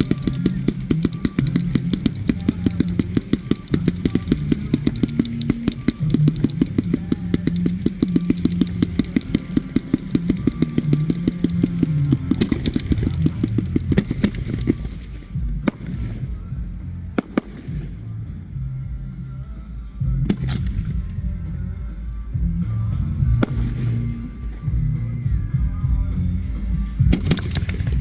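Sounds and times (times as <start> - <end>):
loud firework bangs: 0.0 - 16.5
fireworks crackling: 0.0 - 16.6, 17.2 - 18.2, 23.4 - 24.6
music: 0.0 - 28.0.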